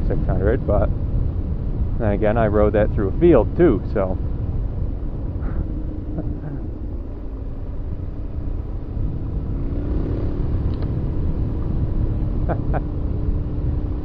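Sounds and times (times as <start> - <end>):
wind rumble on microphone: 0.0 - 14.0
motorcycle engine running: 3.1 - 14.0.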